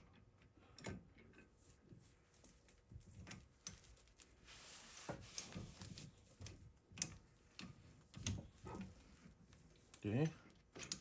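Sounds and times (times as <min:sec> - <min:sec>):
hand tools clicking and knocking: 0:10.2 - 0:11.0.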